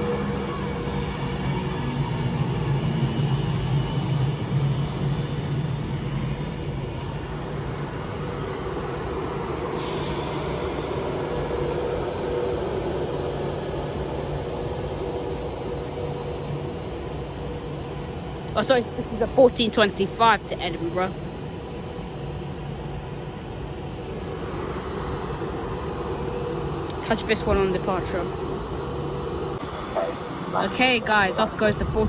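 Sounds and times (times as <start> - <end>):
electric train hum: 0.0 - 32.0
air hiss burst: 9.7 - 11.2.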